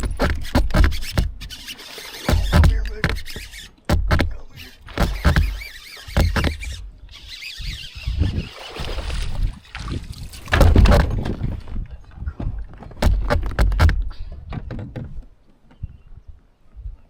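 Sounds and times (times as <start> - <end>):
knocks and bumps on kayak: 0.0 - 1.6, 2.2 - 6.7, 8.7 - 15.4.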